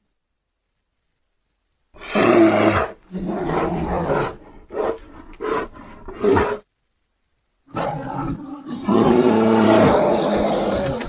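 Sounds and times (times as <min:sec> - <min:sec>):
bear roar: 0:02.0 - 0:06.6, 0:07.7 - 0:11.0.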